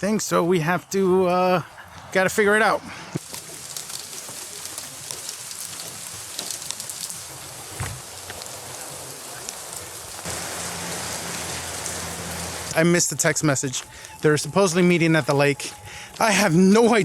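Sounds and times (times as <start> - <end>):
rain falling: 3.2 - 17.0.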